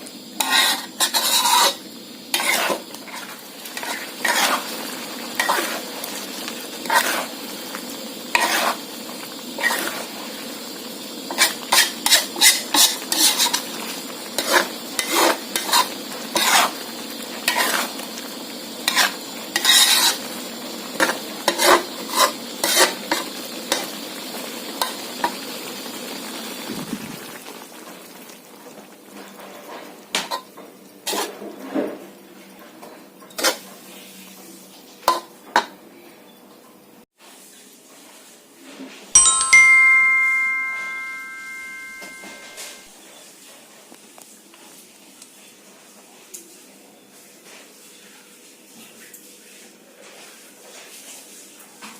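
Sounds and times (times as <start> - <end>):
food sizzling in a pan: 0.0 - 35.8, 37.2 - 51.9
spatula scraping a pan: 0.4 - 7.4, 8.3 - 10.2, 11.3 - 18.2, 18.8 - 23.9, 29.3 - 32.0, 33.3 - 34.1.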